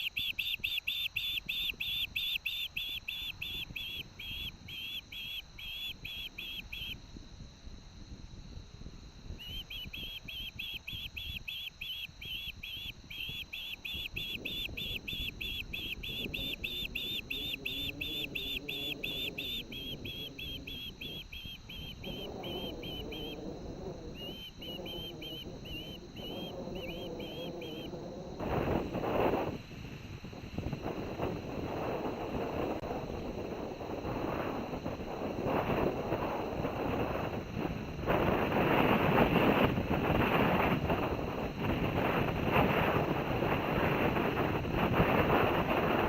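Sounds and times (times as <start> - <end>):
osprey whistled calls: 0.0 - 7.0, 9.3 - 29.5
wind buffeting microphone: 1.0 - 46.0.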